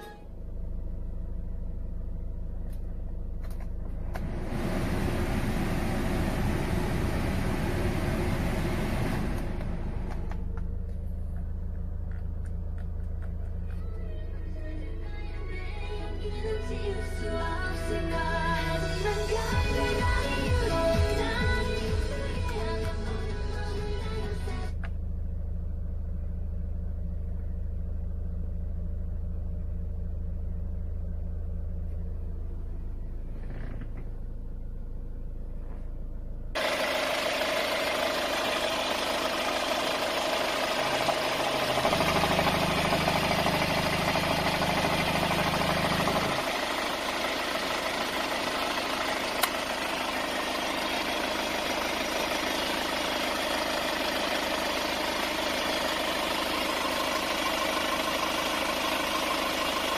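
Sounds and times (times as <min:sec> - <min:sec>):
deeper hum: 0:00.0 - 0:37.1
car engine idling: 0:00.0 - 0:59.9.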